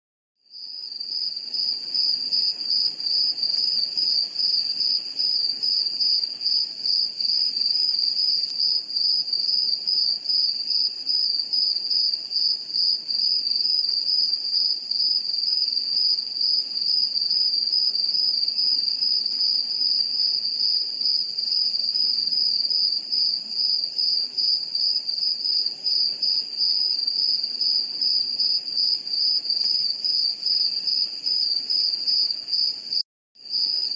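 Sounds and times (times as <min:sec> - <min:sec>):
crickets trilling: 0:00.5 - 0:33.9.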